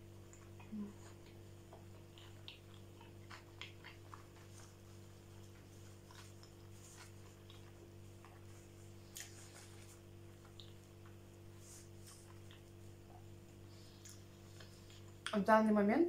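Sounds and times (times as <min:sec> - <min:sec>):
low background hum: 0:00.0 - 0:16.0
wet mouth clicks chewing: 0:00.2 - 0:08.5, 0:10.4 - 0:11.2.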